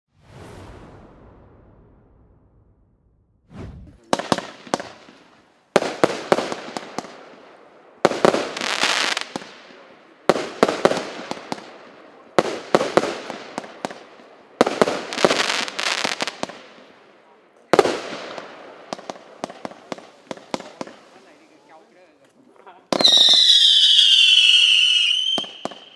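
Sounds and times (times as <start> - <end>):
firework bangs: 0.1 - 16.8, 17.8 - 21.5, 22.9 - 25.9
firework hiss and crackle: 3.6 - 16.9, 17.7 - 22.2.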